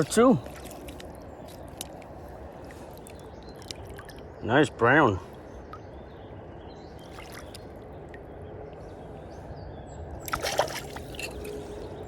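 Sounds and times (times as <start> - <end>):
river water running: 0.0 - 8.4, 9.2 - 12.0
water splash: 10.3 - 11.4.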